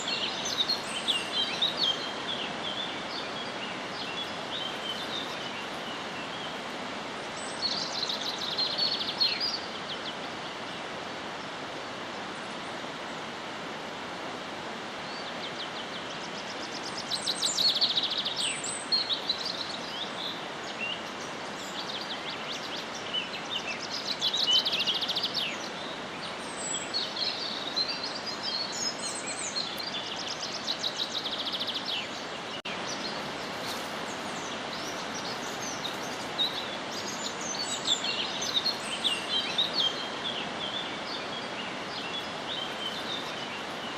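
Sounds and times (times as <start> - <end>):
steady background hiss: 0.0 - 43.9
birds singing trilling phrases: 15.1 - 43.9.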